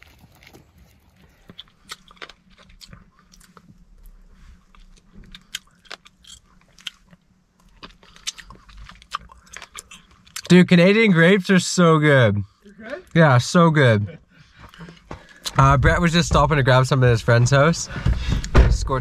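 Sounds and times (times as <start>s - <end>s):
person chewing grapes: 0.0s - 10.5s.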